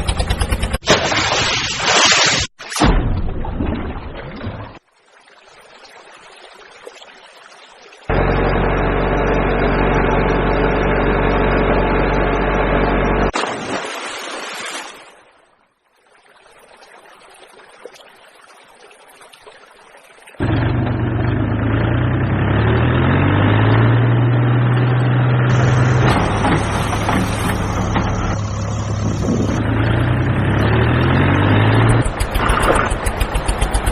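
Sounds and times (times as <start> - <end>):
tractor engine idling: 0.0 - 0.8, 8.1 - 13.3, 25.5 - 30.2, 31.6 - 33.9.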